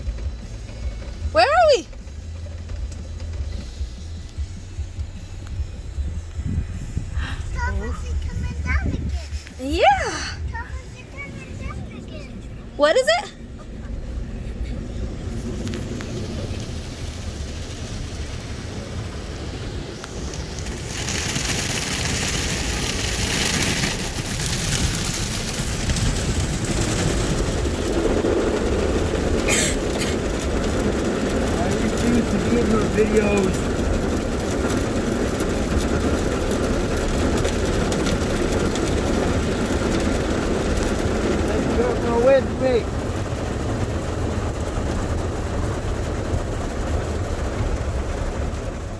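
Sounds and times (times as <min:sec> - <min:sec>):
car wash machinery rumble: 0:00.0 - 0:48.9
water spray hissing against car: 0:13.8 - 0:48.9.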